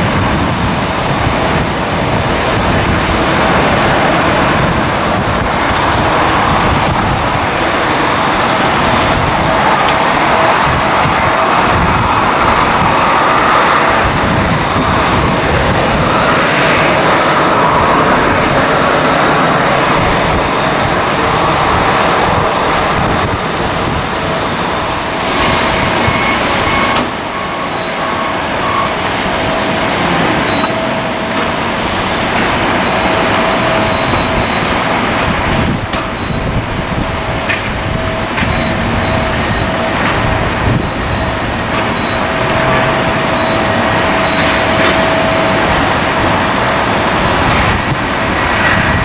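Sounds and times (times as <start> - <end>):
faint engine whine: 0.0 - 49.0
jet engines roaring: 0.0 - 49.0.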